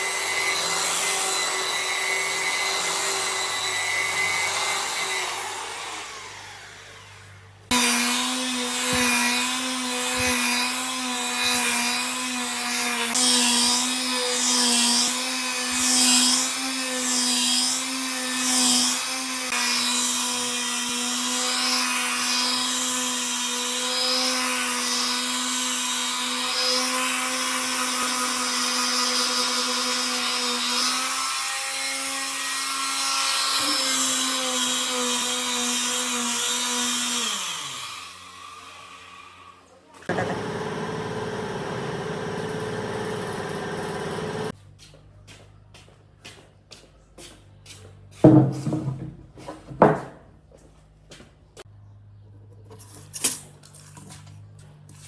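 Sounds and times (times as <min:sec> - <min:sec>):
power tool motor running: 0:00.0 - 0:16.7, 0:21.5 - 0:44.6.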